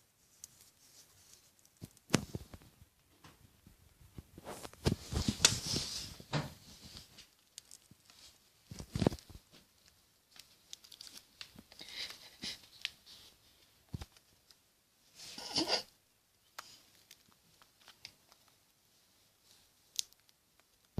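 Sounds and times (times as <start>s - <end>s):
birds rustling and tearing food: 6.7s - 14.6s, 16.5s - 18.7s, 19.8s - 20.9s.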